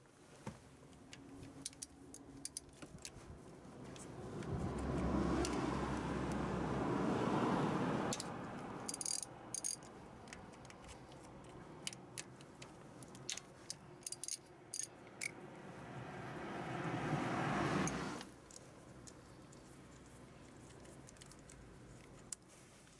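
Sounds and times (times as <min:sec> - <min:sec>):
metallic tool clicks and clinks: 0:01.6 - 0:03.2, 0:08.1 - 0:15.4.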